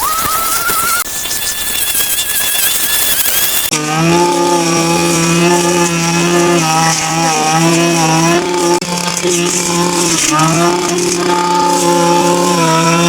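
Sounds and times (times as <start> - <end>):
power tool motor running: 0.0 - 13.0.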